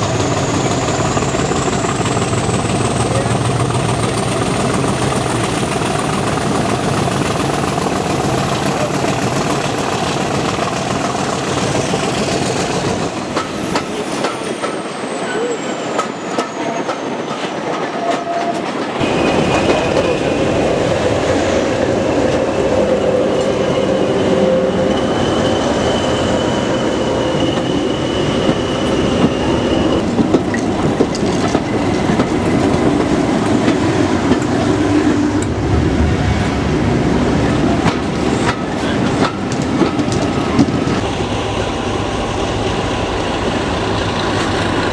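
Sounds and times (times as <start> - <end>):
steady squeal: 0.0 - 3.0, 21.5 - 30.2
train wheels clattering over joints: 0.0 - 20.6, 27.4 - 35.6, 37.4 - 41.0
diesel train passing: 0.0 - 44.9.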